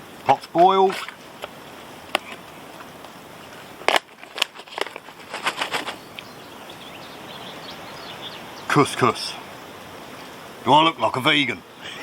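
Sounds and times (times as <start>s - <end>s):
foil pouch crinkling and tearing: 3.8s - 6.0s.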